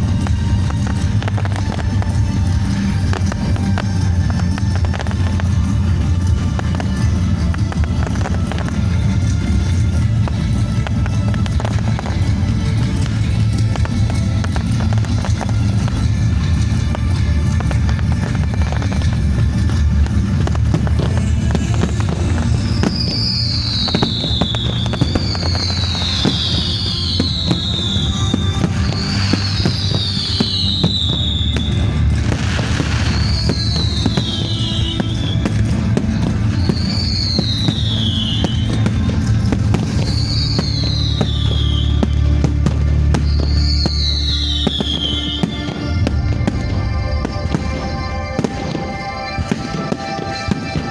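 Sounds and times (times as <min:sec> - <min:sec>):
fireworks crackling and banging: 0:00.0 - 0:50.9
loud music with bass: 0:00.0 - 0:50.9
high falling whistle: 0:36.5 - 0:38.9, 0:40.0 - 0:42.3, 0:43.2 - 0:50.9.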